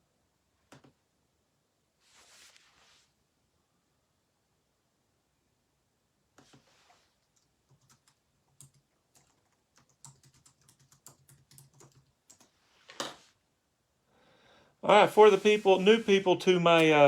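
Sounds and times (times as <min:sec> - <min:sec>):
typing on keyboard: 0:07.2 - 0:12.5.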